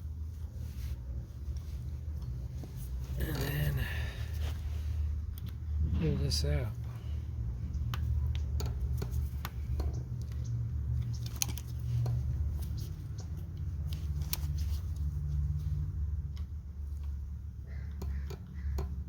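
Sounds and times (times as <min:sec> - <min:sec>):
steady low hum: 0:00.0 - 0:19.0
small clicks and taps of hands: 0:07.7 - 0:15.5.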